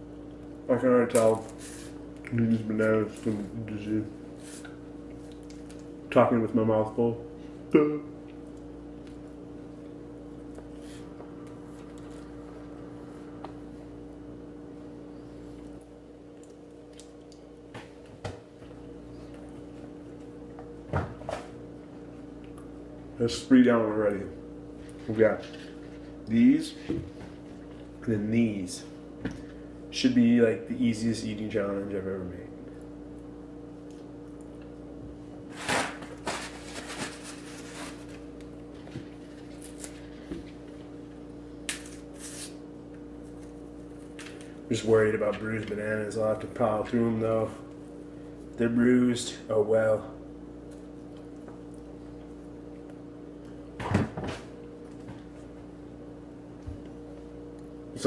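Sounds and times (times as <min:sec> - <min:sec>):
steady low hum: 0:00.0 - 0:58.0
bananas being peeled and eaten: 0:00.1 - 0:06.1, 0:07.6 - 0:14.3, 0:15.2 - 0:20.8, 0:32.6 - 0:45.7.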